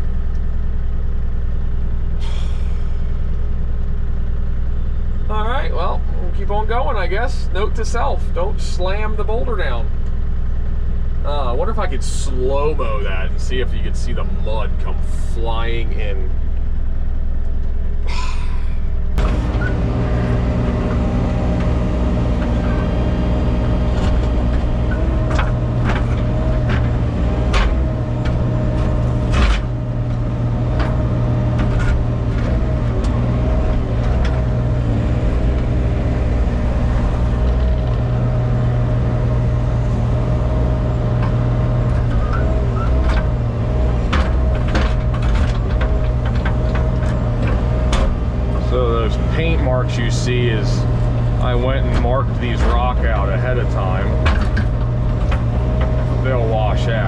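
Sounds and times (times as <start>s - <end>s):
machine engine running: 17.8s - 57.0s
boulders clanking and knocking: 19.1s - 57.0s.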